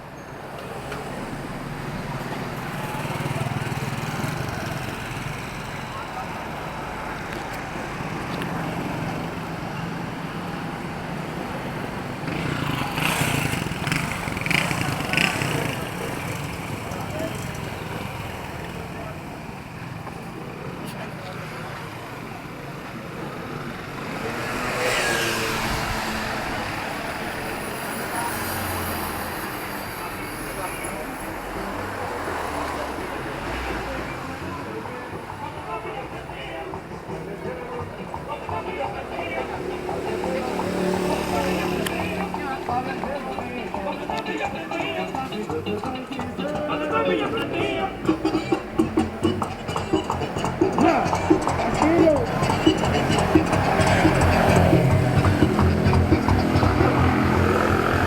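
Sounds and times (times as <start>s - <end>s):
street noise: 0.0s - 58.0s
small engine rumbling: 0.2s - 58.0s
vehicle passing by: 0.7s - 19.2s, 23.2s - 34.7s, 39.4s - 44.3s, 46.8s - 58.0s.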